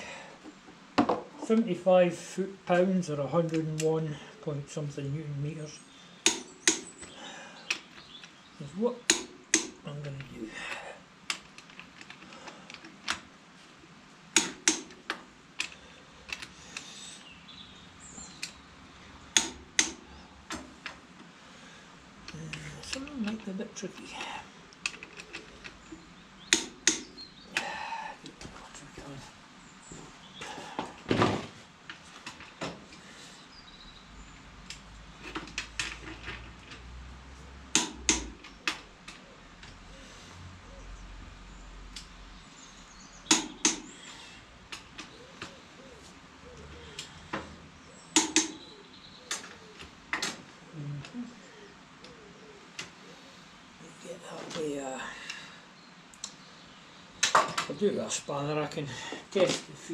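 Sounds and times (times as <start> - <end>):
torque wrench clicking: 6.2 - 6.9, 26.5 - 27.2.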